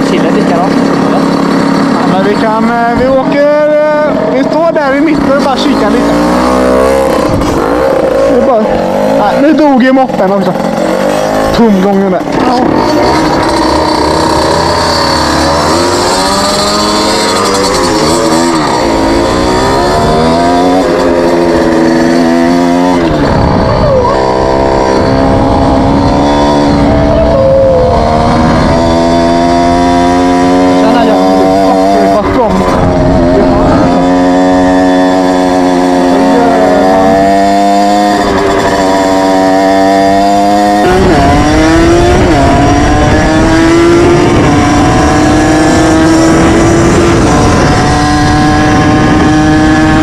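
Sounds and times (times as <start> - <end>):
moped engine revving: 0.0 - 50.0.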